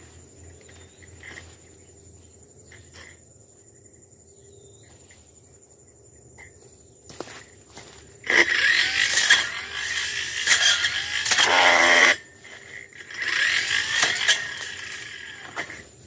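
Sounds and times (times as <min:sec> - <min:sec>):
brush cutter revving: 0:08.2 - 0:16.0.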